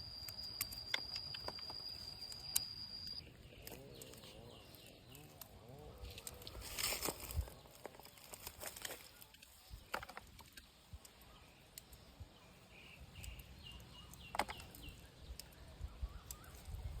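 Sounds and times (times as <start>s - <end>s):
small bird chirping: 0.0s - 17.0s
faint clicks and rustles: 0.2s - 12.4s.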